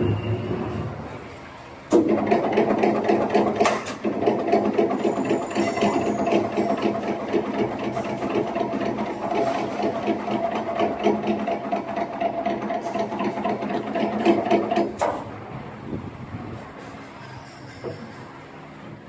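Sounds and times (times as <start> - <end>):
machine mechanical clatter: 1.9 - 15.4.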